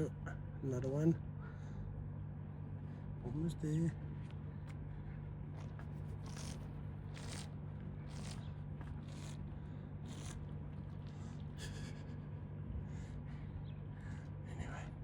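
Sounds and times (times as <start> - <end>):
steady low hum: 0.0 - 15.0
giraffe slurping water: 5.4 - 12.1.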